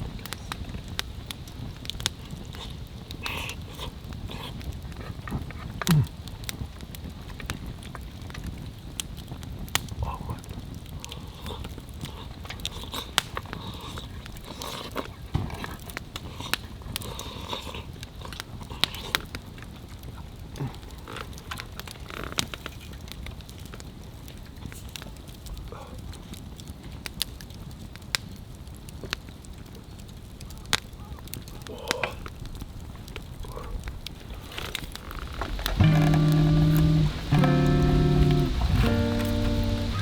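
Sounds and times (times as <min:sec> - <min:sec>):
campfire crackling and popping: 0:00.0 - 0:40.0
low sound falling in pitch: 0:35.8 - 0:40.0.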